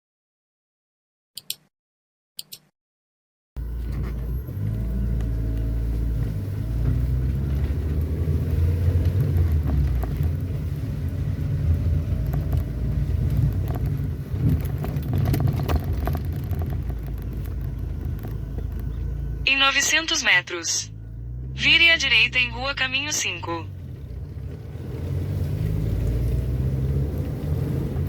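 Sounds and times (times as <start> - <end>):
vehicle engine and road noise: 3.6 - 28.0
knocks and rattles: 11.8 - 19.2.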